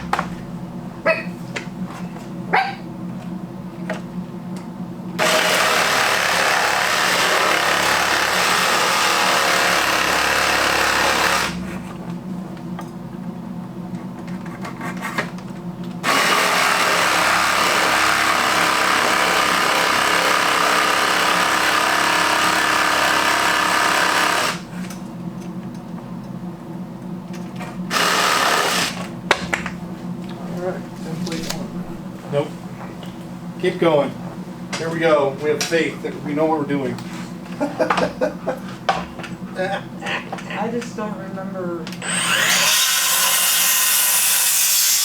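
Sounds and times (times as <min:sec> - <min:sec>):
electric jigsaw cutting: 0:00.0 - 0:00.8, 0:05.2 - 0:11.7, 0:16.0 - 0:24.7, 0:27.9 - 0:29.1, 0:42.0 - 0:45.0.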